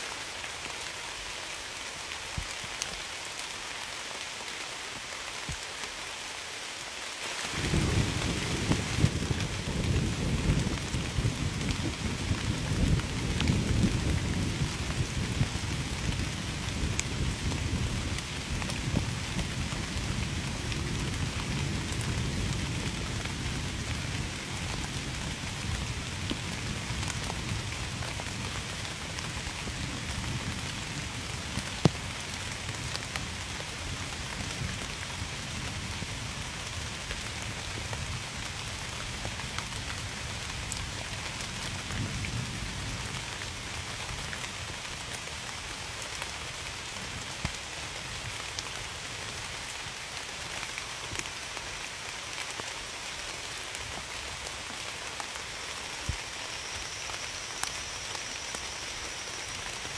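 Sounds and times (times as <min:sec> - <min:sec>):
heavy rain pattering: 0:00.0 - 0:59.9
low thunder rumble: 0:07.6 - 0:28.4.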